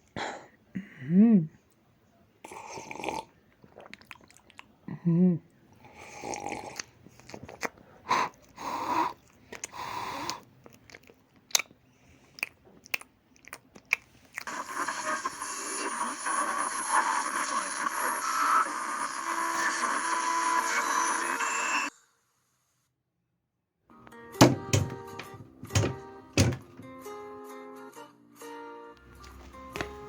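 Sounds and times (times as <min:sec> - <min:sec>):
crunching and chewing: 0:03.5 - 0:04.8, 0:06.1 - 0:14.9.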